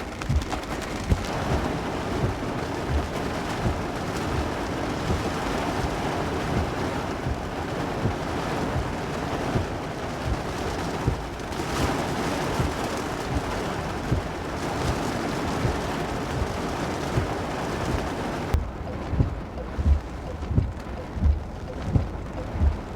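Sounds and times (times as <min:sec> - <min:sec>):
heavy rain hissing: 0:00.0 - 0:22.9
wind gusting on microphone: 0:00.0 - 0:22.9.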